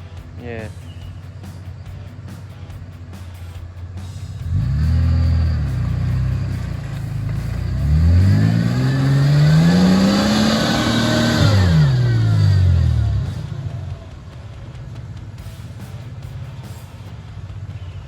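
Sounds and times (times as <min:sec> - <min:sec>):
engine revving hard: 0:04.2 - 0:14.2.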